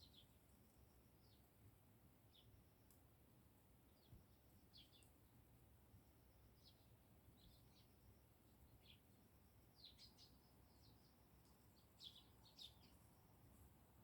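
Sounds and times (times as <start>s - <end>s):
sparrows chirping: 0.0s - 0.4s, 3.9s - 5.2s, 6.5s - 13.7s.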